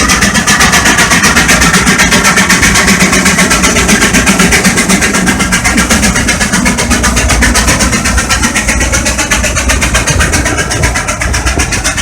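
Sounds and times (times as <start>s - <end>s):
steam engine exhaust chuffing: 0.0s - 12.0s.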